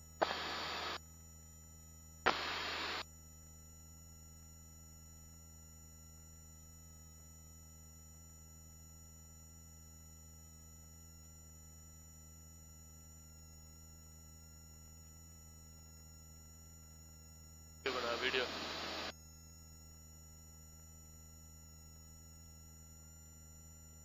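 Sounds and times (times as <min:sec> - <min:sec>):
thin whine tones: 0:00.2 - 0:01.0, 0:16.4 - 0:23.7.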